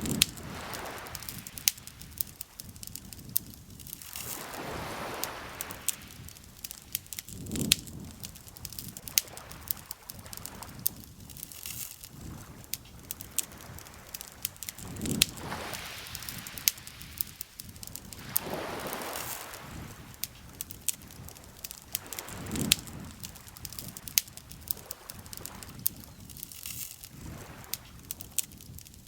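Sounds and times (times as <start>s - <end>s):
campfire crackling and popping: 0.0s - 29.0s
soft washes of noise: 0.0s - 29.0s.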